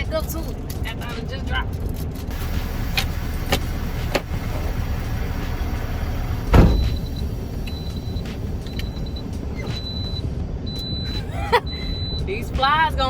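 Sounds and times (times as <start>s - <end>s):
truck engine idling: 2.3s - 13.0s
heavy thump: 6.3s - 7.3s
short high-pitched beeps: 11.7s - 12.3s.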